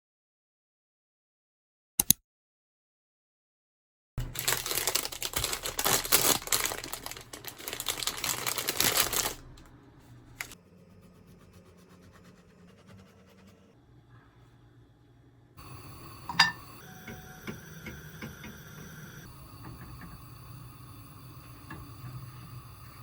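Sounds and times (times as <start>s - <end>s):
sharp click: 2.0s - 2.2s
packaging crinkling and rustling: 4.2s - 9.7s, 10.3s - 10.6s.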